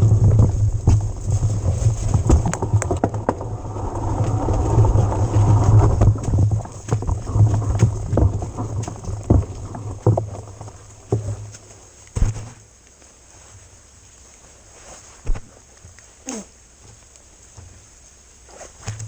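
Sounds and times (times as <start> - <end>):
bike knocks and rattles: 0.0 - 12.6
low steady rumble: 0.0 - 12.8.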